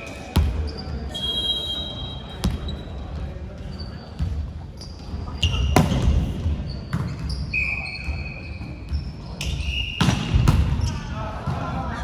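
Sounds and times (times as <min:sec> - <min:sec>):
sneaker squeaks: 0:00.0 - 0:11.2
basketball bouncing on court: 0:02.4 - 0:02.8, 0:04.2 - 0:07.4.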